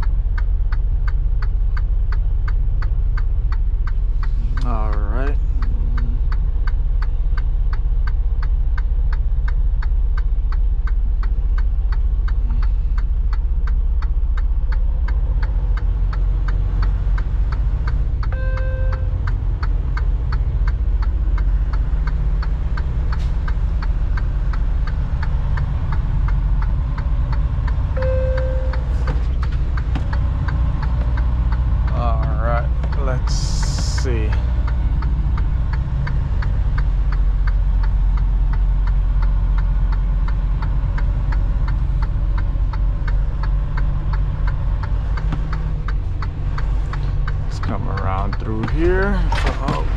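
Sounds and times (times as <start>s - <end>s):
diesel truck engine running: 0.0s - 49.9s
short beeps: 18.3s - 19.2s, 28.0s - 29.1s.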